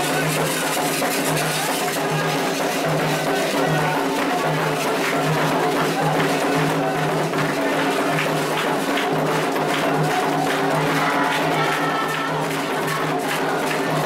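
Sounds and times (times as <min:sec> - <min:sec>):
hand drums and percussion: 0:00.0 - 0:14.0
voices singing: 0:09.5 - 0:14.0.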